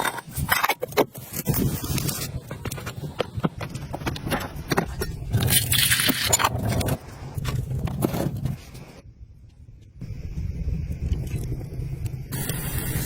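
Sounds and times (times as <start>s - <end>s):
scraping and knocking: 0.0s - 9.0s.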